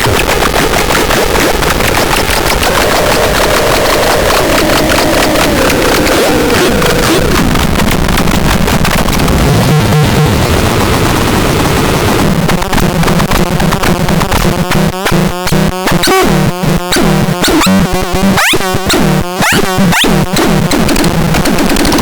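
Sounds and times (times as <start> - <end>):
harsh electronic noise: 0.0 - 22.0
stuttering chopped bursts: 0.0 - 22.0
low electronic drone: 1.2 - 14.0.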